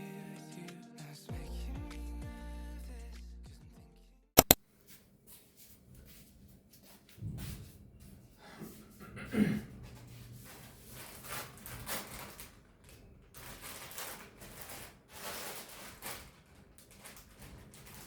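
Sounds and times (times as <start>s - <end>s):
rustling and handling noises: 4.4s - 9.0s, 9.7s - 18.0s.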